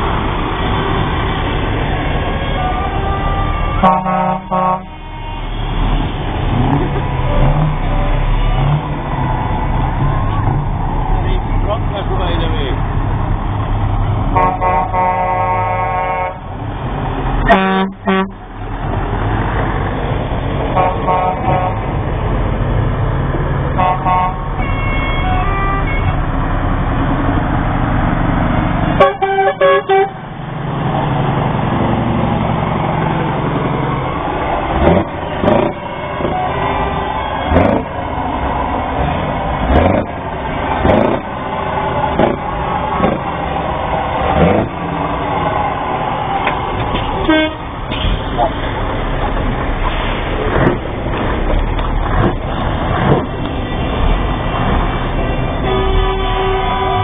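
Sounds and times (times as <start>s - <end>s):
diesel trucks rumbling past: 0.0s - 57.0s
lorry air horn blasts: 2.4s - 5.6s, 14.4s - 16.4s, 17.5s - 18.4s, 23.8s - 26.2s, 29.0s - 30.2s, 47.2s - 47.7s, 55.6s - 57.0s.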